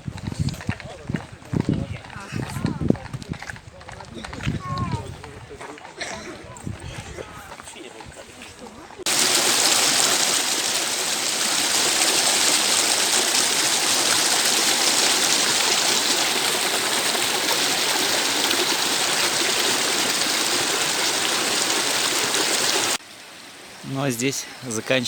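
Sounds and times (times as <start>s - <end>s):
stream rushing over rocks: 9.0s - 25.0s.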